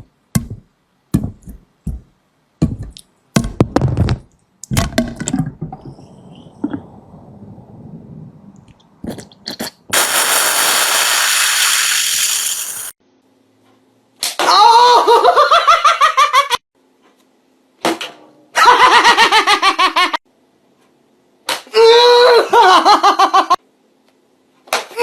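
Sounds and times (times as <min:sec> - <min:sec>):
loud hiss: 0:09.9 - 0:13.0.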